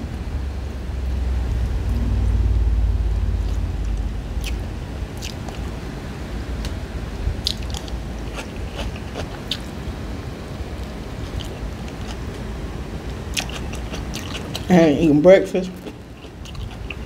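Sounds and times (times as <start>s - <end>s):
low steady hum: 0.0s - 17.0s
chewing fried fish: 3.4s - 5.8s, 7.4s - 9.7s, 10.8s - 12.5s, 13.1s - 17.0s.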